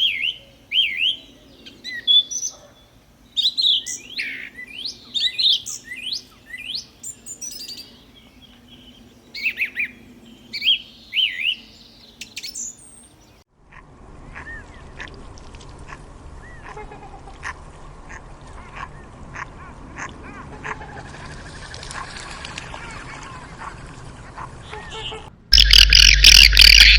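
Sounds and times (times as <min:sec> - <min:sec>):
birds chirping and whistling: 0:10.5 - 0:13.1, 0:25.5 - 0:26.9.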